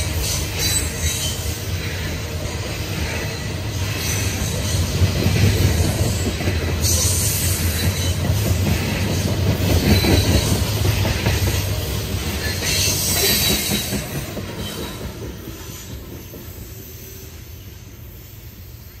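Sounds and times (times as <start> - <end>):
high wheel squeal: 0.0 - 5.0, 9.8 - 10.8, 12.4 - 17.4.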